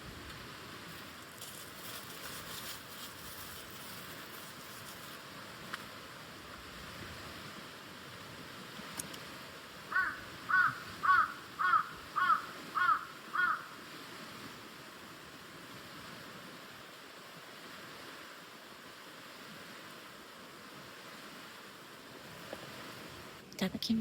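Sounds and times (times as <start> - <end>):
crow cawing: 9.9 - 13.8.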